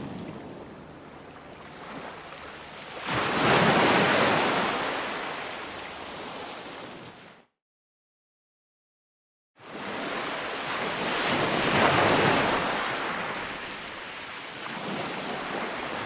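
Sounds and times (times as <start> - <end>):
ocean wave breaking: 0.0 - 7.3.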